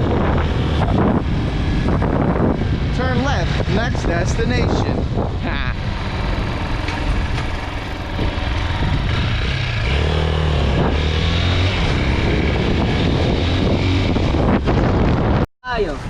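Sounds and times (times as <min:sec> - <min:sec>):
dirt bike engine running: 0:05.1 - 0:15.4.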